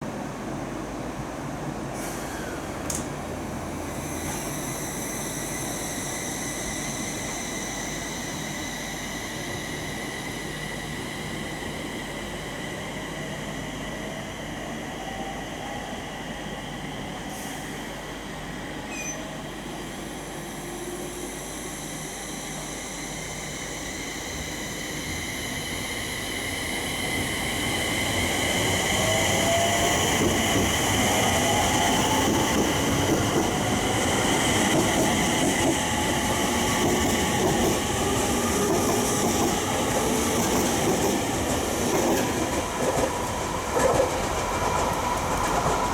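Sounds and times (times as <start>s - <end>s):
electric train inverter whine: 0.1s - 45.9s
high-pitched ringing tones: 18.9s - 26.0s.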